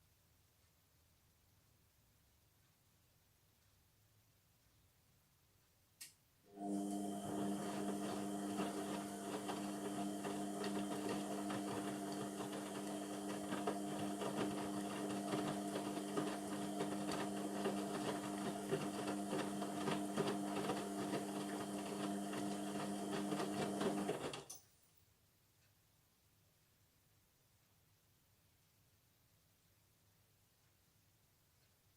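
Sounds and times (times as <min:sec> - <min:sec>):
washing machine motor whine: 0:06.5 - 0:24.5.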